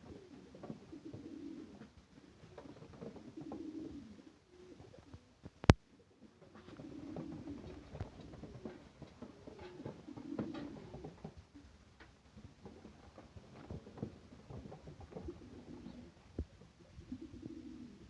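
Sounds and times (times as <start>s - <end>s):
pigeons cooing: 0.0s - 11.7s, 12.4s - 18.0s
light clicks and pattering: 6.4s - 16.8s.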